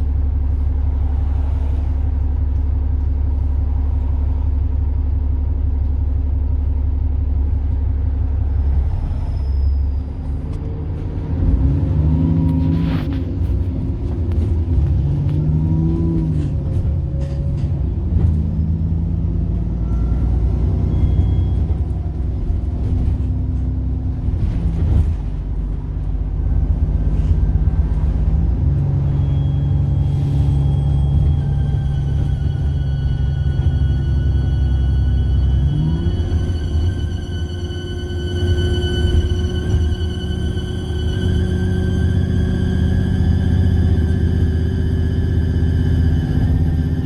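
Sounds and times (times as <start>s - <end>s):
diesel engine rumbling: 0.0s - 47.0s
turbocharger whine: 27.1s - 47.0s.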